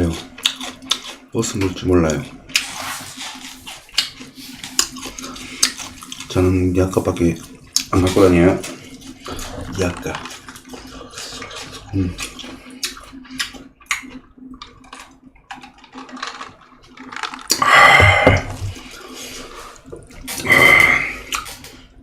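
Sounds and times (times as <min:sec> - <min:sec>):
wet chewing and lip smacks: 0:00.1 - 0:06.4, 0:07.3 - 0:08.0, 0:08.6 - 0:17.6, 0:21.3 - 0:21.8.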